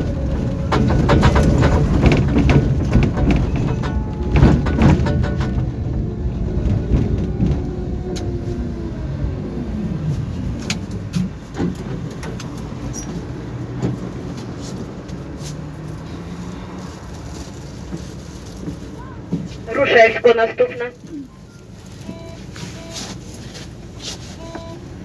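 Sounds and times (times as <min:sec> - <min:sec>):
tram motor whine: 0:00.0 - 0:11.1
sharp clicks and knocks: 0:00.7 - 0:06.0.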